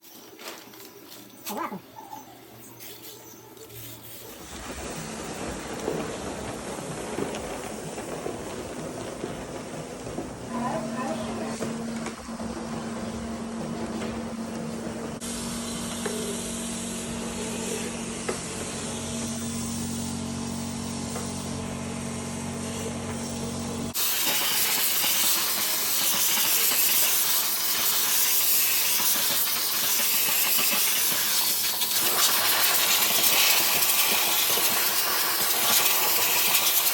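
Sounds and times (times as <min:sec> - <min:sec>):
cleaning spray jet hissing: 0:24.0 - 0:36.9.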